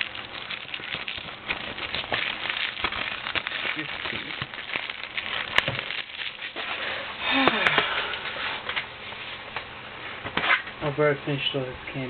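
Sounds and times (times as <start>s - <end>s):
packaging rustling: 0.0s - 8.9s.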